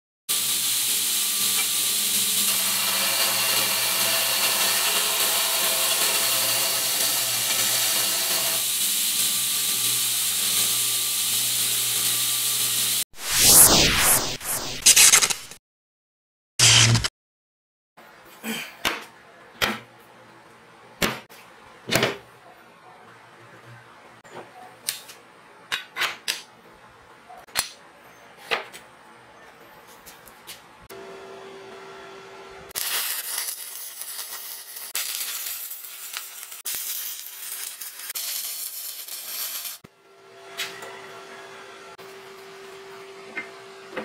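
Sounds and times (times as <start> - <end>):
welding arc crackling and hissing: 0.3 - 15.6, 32.7 - 39.9.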